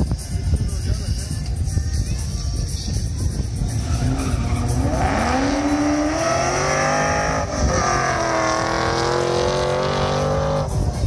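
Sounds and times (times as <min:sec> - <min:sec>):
car engine accelerating hard: 0:03.7 - 0:10.9.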